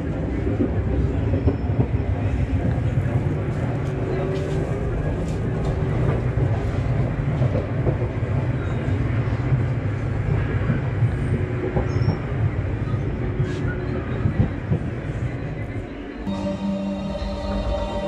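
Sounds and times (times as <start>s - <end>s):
train rumbling on rails: 0.0s - 18.0s.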